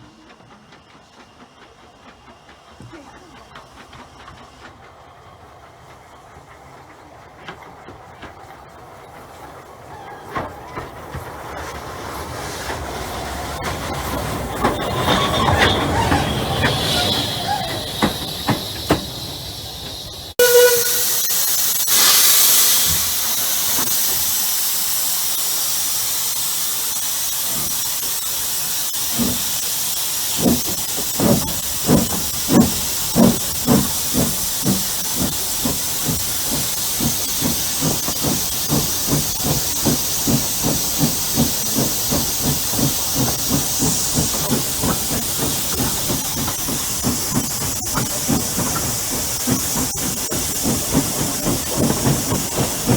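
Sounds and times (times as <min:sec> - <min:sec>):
steam locomotive exhaust beats: 0:00.0 - 0:52.9
steam hissing: 0:00.1 - 0:52.9
steam whistle: 0:20.4 - 0:22.9.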